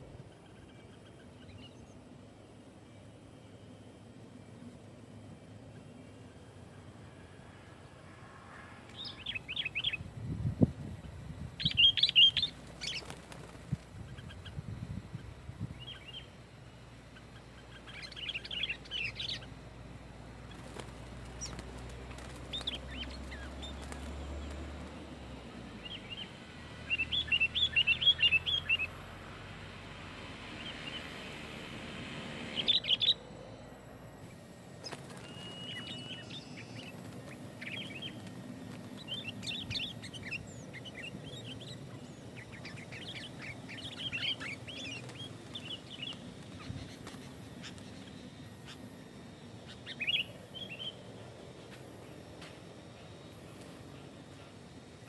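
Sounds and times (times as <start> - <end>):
bulbul singing: 8.9 - 10.2, 11.0 - 29.2, 32.4 - 49.0, 49.6 - 51.4.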